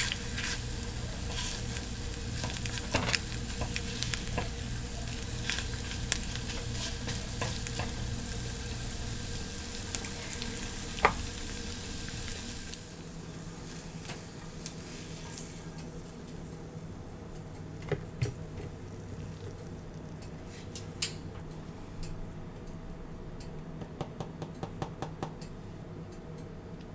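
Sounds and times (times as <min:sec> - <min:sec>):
food sizzling in a pan: 0:00.0 - 0:17.1.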